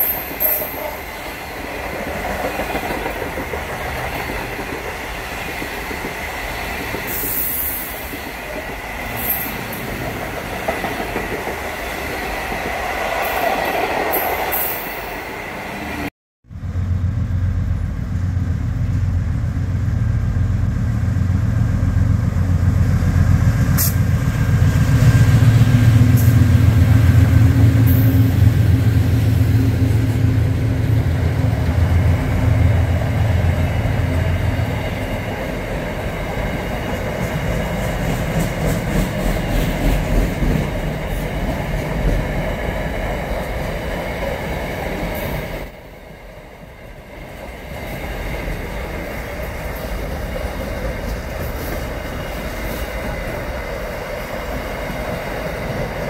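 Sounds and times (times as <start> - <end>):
locomotive engine drone: 16.5 - 37.4.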